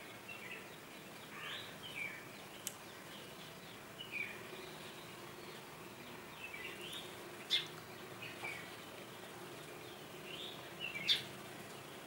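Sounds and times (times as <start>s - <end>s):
birds chirping: 0.0s - 12.0s
faint steady hum: 0.0s - 12.0s.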